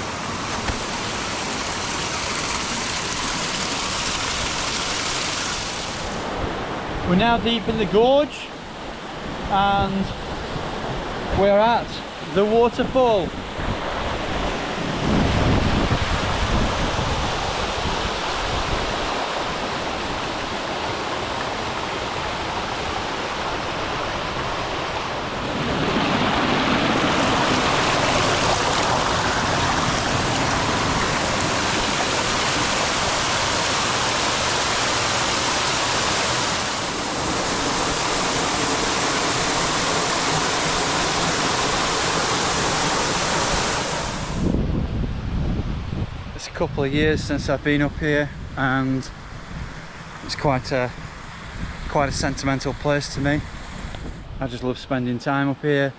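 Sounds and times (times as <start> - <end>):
waterfall rushing: 0.0 - 7.4, 8.6 - 44.6.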